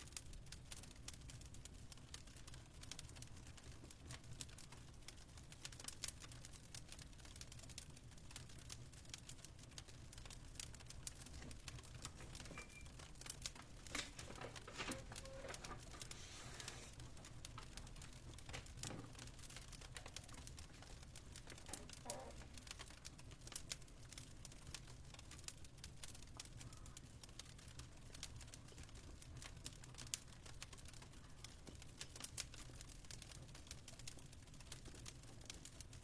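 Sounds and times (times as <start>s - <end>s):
fireplace crackling: 0.0s - 36.0s.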